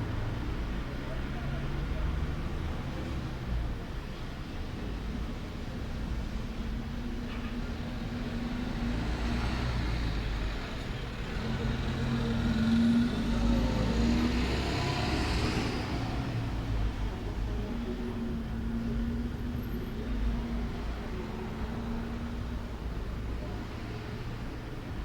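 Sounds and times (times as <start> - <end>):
vehicle passing by: 11.3 - 17.2.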